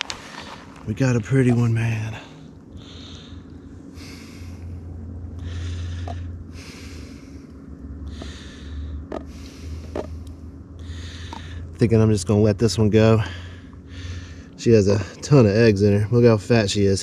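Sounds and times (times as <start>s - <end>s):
low steady hum: 0.0s - 17.0s
man breathing: 2.1s - 11.8s, 13.2s - 15.2s.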